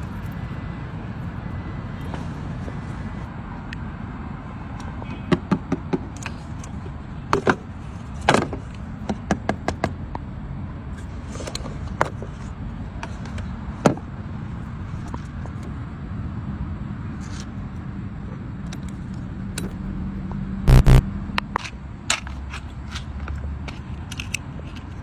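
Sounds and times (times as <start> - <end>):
sharp clicks and taps: 20.7 - 21.0.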